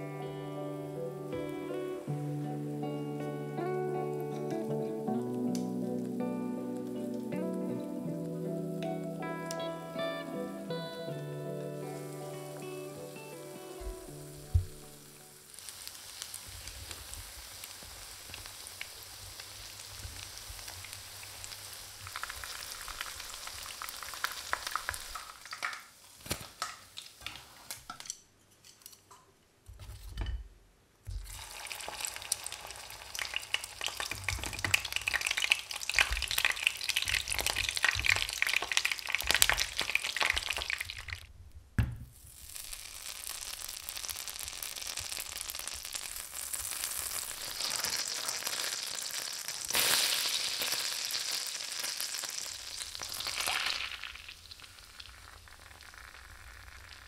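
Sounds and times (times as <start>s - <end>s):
chicken frying in oil: 12.5s - 27.8s, 31.2s - 41.3s, 42.2s - 57.0s.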